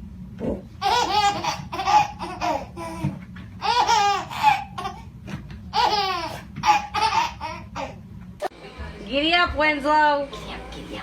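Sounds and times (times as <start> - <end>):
baby laughing: 0.8 - 5.1, 5.7 - 8.0.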